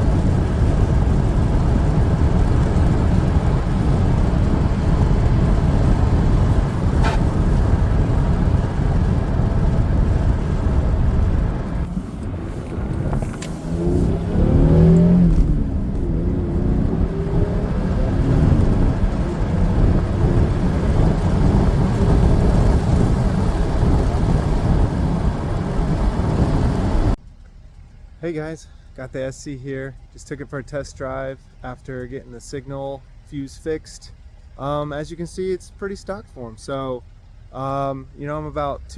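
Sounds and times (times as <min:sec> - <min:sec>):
car engine revving: 0:00.0 - 0:27.2
road noise: 0:00.0 - 0:38.9.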